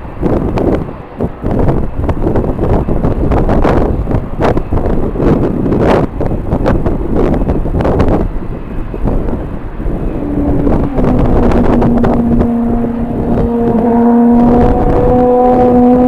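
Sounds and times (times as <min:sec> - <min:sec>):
gusty wind buffeting microphone: 0:00.0 - 0:16.0
low steady hum: 0:08.5 - 0:16.0.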